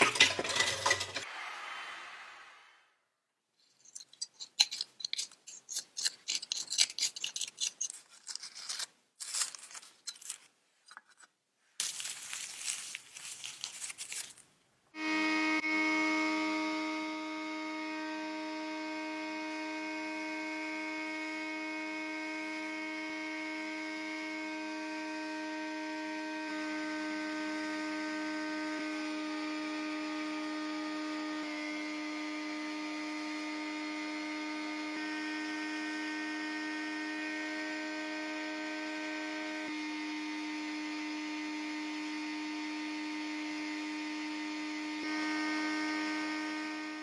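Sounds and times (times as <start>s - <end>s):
small electric motor humming: 15.0s - 47.0s.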